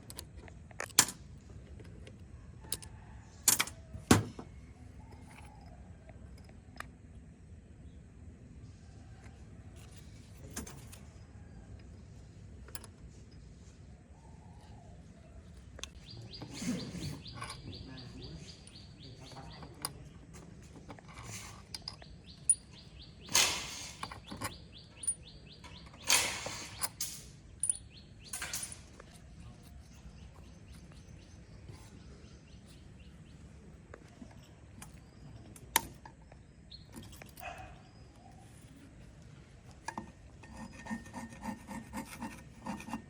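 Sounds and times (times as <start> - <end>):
bird trilling: 16.0 - 19.8.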